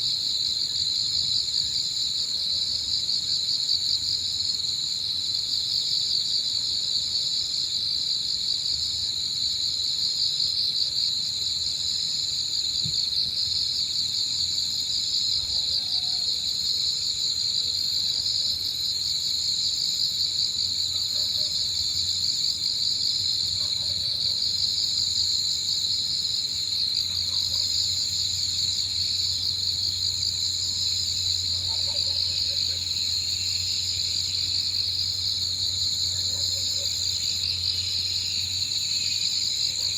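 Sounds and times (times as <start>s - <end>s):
insects chirring trill: 8.8s - 39.9s.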